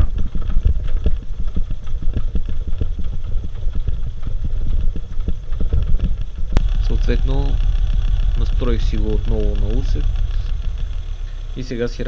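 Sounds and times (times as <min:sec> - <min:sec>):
car engine idling unevenly: 0:06.6 - 0:12.0.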